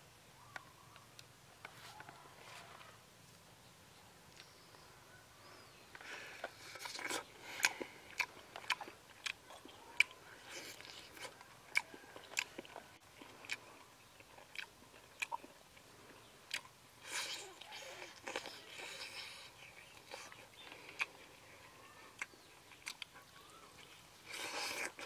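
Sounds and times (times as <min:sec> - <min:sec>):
man chewing meat: 0:05.9 - 0:25.0
mouth clicks and smacks: 0:22.2 - 0:23.2.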